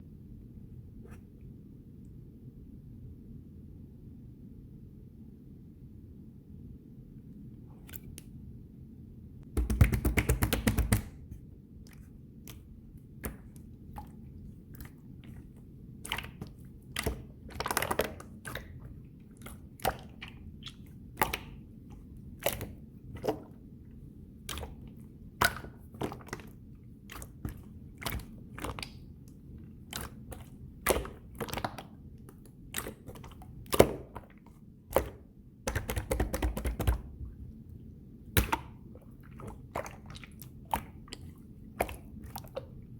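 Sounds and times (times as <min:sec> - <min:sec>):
slime clicking and popping: 0:09.6 - 0:11.2, 0:29.9 - 0:37.1, 0:38.3 - 0:38.8
slime fast crackling: 0:09.6 - 0:11.2.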